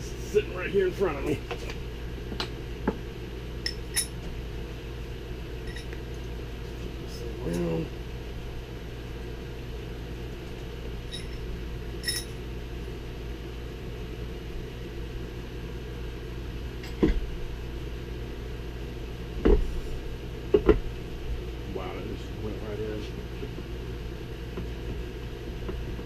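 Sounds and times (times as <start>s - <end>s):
steady low hum: 0.0s - 26.0s
metal parts clinking: 5.7s - 5.9s, 11.1s - 11.4s, 12.0s - 12.3s
dull knocks on workbench: 19.4s - 19.7s.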